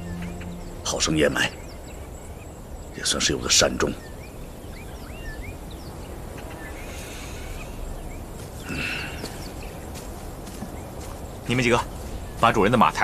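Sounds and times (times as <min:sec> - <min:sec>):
small birds chirping: 0:00.0 - 0:13.0
steady background hiss: 0:00.0 - 0:13.0.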